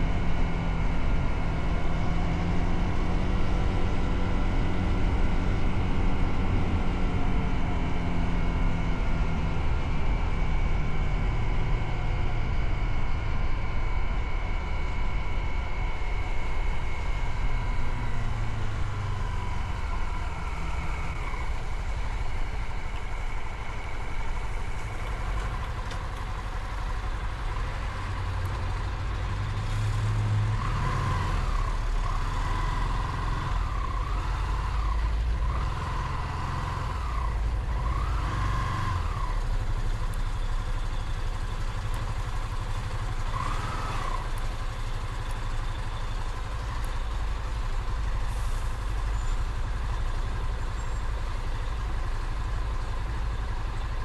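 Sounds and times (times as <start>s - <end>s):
whining tone rising and falling: 0.0s - 21.6s
motorcycle engine rumble: 0.0s - 54.0s.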